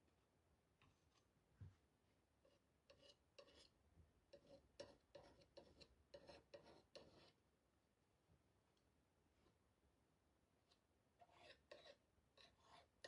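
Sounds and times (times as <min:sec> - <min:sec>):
hand tool scraping paint: 0:02.5 - 0:07.4, 0:11.2 - 0:13.0.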